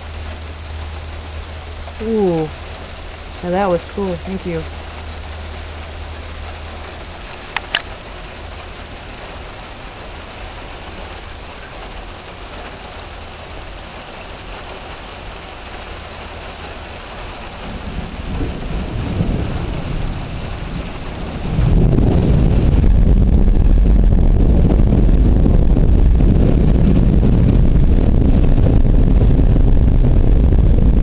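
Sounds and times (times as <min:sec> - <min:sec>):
heavy rain: 0:00.0 - 0:31.0
thunder rumbling: 0:15.6 - 0:31.0.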